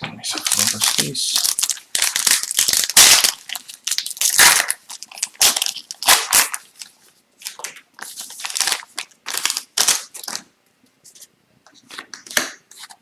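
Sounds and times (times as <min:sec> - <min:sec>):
plastic wrappers crinkling: 0:00.3 - 0:10.5.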